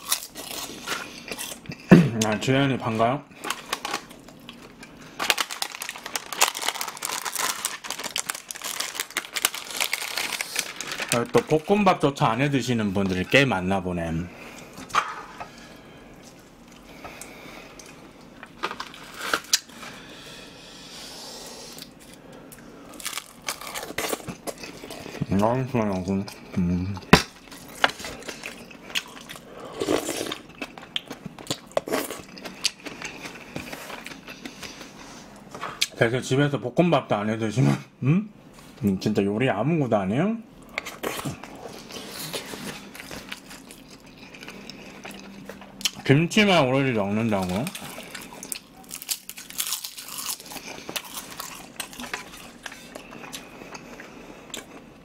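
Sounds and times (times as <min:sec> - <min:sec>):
person chewing food: 0:21.6 - 0:25.3, 0:25.9 - 0:35.9, 0:40.7 - 0:46.0, 0:47.6 - 0:55.0
close chewing with mouth clicks: 0:27.0 - 0:34.9, 0:40.8 - 0:46.0.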